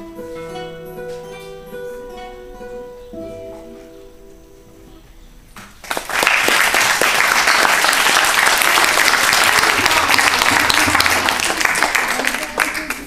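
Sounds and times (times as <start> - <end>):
acoustic guitar song: 0.0 - 5.3
audience applauding: 5.8 - 13.0.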